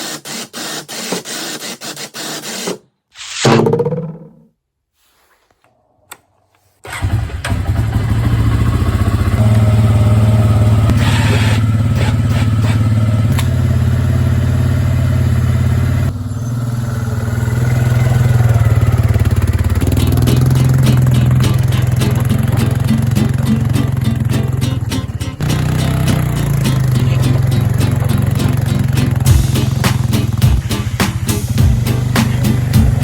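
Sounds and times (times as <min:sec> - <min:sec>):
single-cylinder engine running: 0:06.9 - 0:33.0.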